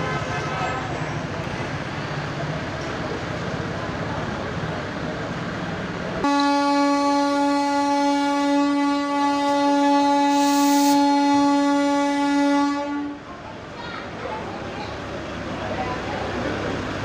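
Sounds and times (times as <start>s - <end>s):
locomotive horn blast: 6.2s - 13.3s.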